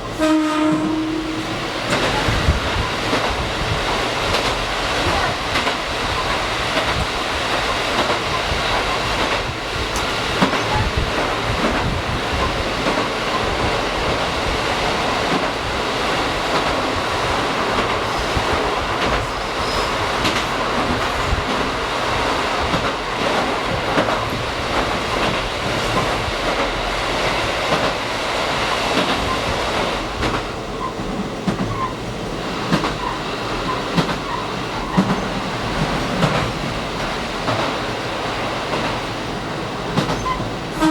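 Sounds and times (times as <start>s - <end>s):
train running noise: 0.0s - 40.9s
wheels clicking on rail joints: 0.8s - 15.7s, 28.9s - 40.9s.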